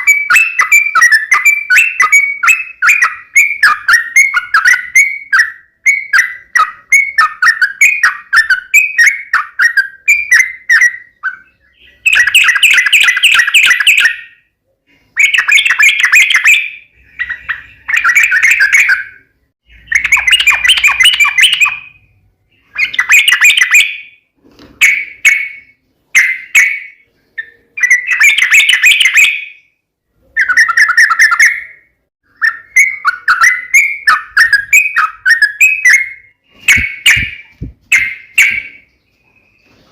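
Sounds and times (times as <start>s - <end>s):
bird singing chattering phrases: 0.0s - 24.2s, 24.8s - 39.9s.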